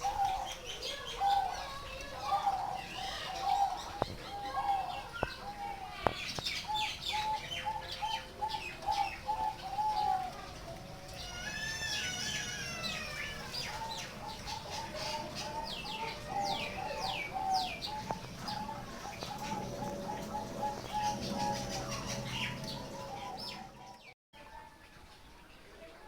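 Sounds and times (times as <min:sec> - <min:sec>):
doves cooing: 0:00.0 - 0:24.1.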